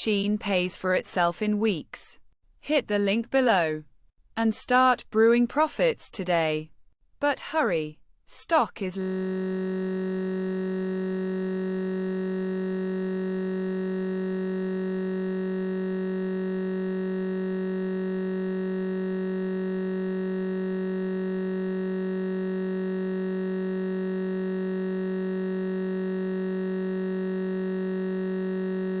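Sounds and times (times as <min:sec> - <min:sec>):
sustained synthesizer chord: 0:09.0 - 0:29.0.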